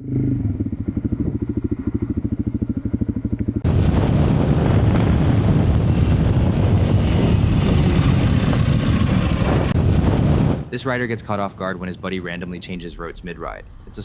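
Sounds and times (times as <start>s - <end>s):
motorcycle engine idling: 0.0s - 4.0s
motorcycle riding at speed: 0.0s - 10.7s.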